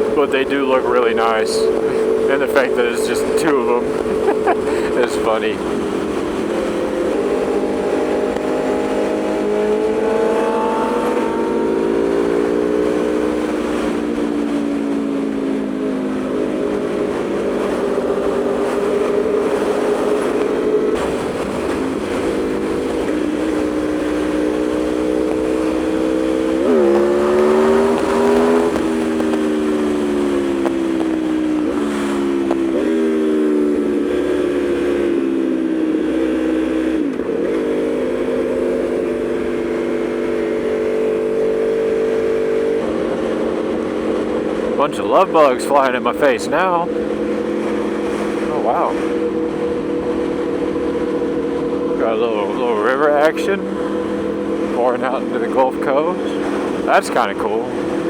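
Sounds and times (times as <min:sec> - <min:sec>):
wind rush over microphone: 0:00.0 - 0:35.8
motorcycle engine revving: 0:00.0 - 0:58.0.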